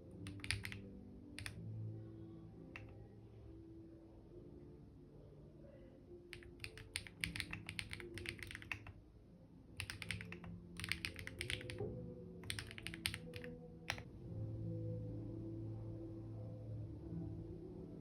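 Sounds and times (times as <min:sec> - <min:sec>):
soft background music: 0:00.0 - 0:18.0
typing on computer keyboard: 0:00.2 - 0:01.6, 0:02.8 - 0:03.0, 0:06.3 - 0:09.0, 0:09.8 - 0:14.1.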